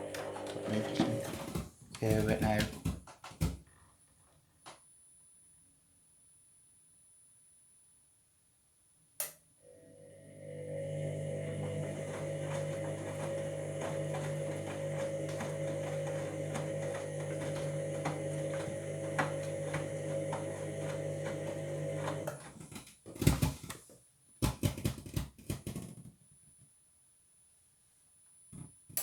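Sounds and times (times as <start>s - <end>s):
washing machine motor hum: 0.0s - 3.5s, 9.7s - 23.6s.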